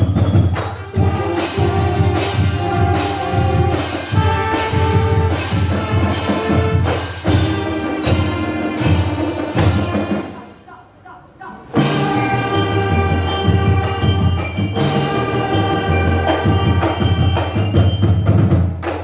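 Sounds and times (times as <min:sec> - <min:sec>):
brass and mallet notes: 0:00.0 - 0:10.5, 0:11.8 - 0:18.6
sharp percussion strikes: 0:00.0 - 0:10.6, 0:11.8 - 0:19.0.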